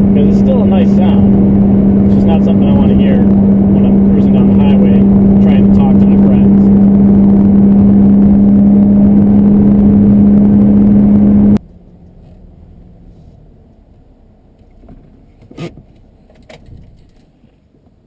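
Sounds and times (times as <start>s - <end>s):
car exhaust at high revs: 0.0s - 11.6s
low hum: 0.0s - 14.4s.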